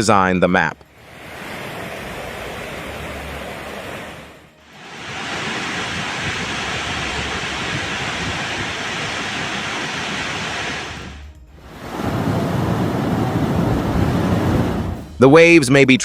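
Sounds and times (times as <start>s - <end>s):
water rushing: 0.8s - 15.1s.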